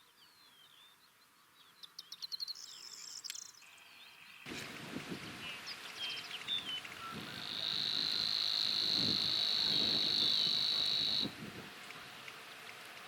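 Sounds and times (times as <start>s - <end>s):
warbler buzzing trill: 6.5s - 11.3s.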